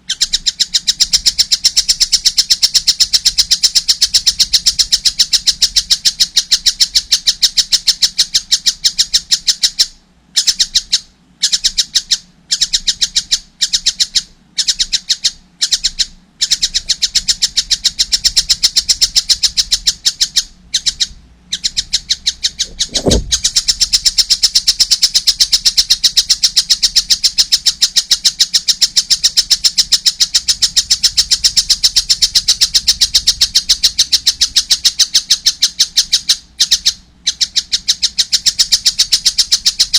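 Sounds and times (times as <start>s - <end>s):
kingfisher chick chattering: 0.0s - 39.9s
low thump: 22.7s - 23.5s.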